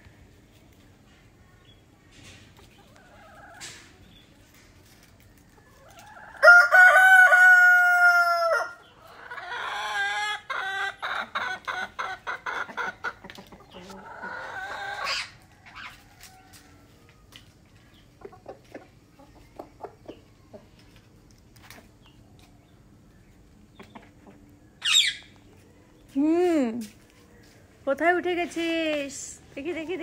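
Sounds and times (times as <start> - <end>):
rooster crowing: 6.1 - 8.8.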